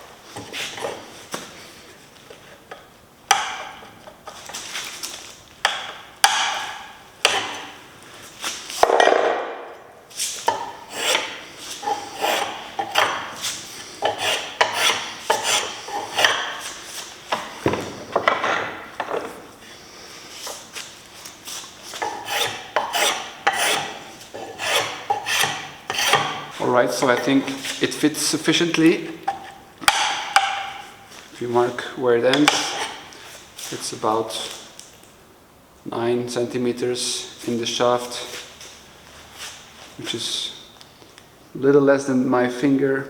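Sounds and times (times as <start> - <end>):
blade scraping wood: 10.2 - 17.6, 21.5 - 27.9, 32.3 - 33.1.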